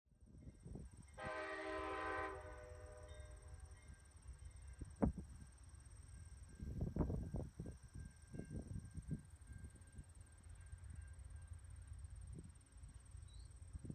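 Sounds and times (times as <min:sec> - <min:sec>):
train horn blast: 0:01.2 - 0:03.4.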